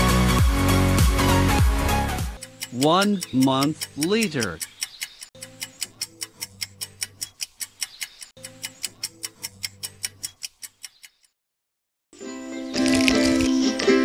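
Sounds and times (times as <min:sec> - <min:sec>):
rapid clock ticking: 0:02.4 - 0:11.4.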